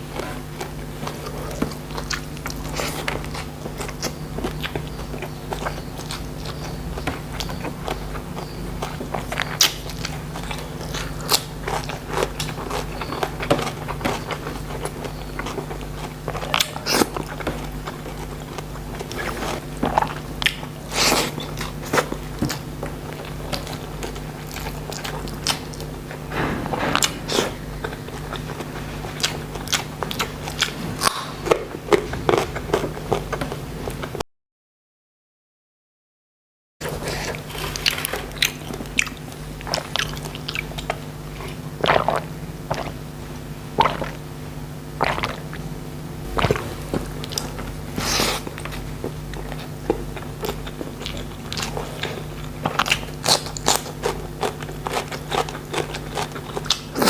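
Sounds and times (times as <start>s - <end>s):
wet chewing: 0.2s - 34.2s, 36.8s - 43.0s, 43.7s - 44.2s, 45.0s - 57.0s
crisp food crunches: 46.3s - 57.0s.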